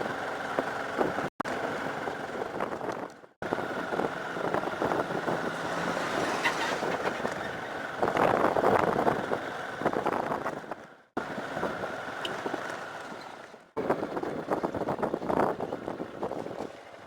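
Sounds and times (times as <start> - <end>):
vehicle road noise: 0.0 - 17.0.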